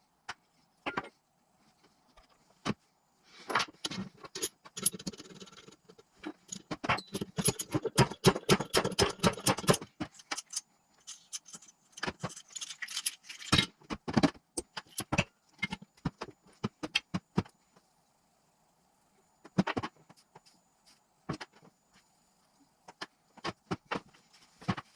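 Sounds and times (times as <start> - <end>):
metal tools clinking: 6.4 - 8.3, 9.1 - 13.7.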